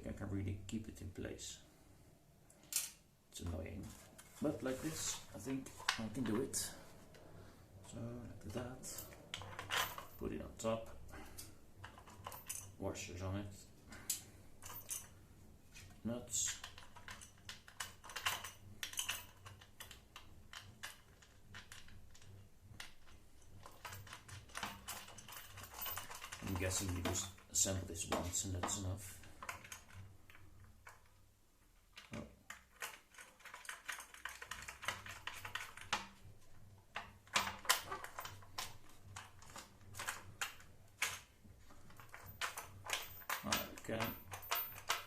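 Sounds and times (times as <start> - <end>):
clicks of hardware being handled: 2.6 - 3.0
small metal hardware clicking: 2.6 - 3.0, 41.9 - 45.0.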